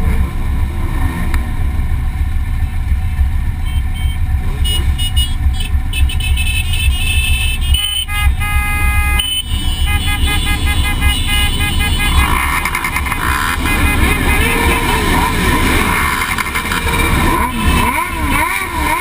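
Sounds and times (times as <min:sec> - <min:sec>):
motorcycle engine rumble: 0:00.0 - 0:19.0
high steady tones: 0:06.0 - 0:18.2.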